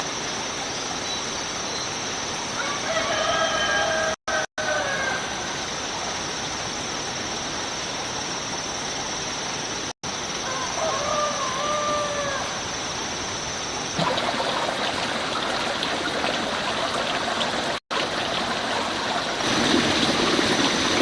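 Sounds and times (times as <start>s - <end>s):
rooster crowing: 2.6s - 5.5s, 10.4s - 12.6s
stream rushing: 12.6s - 21.0s.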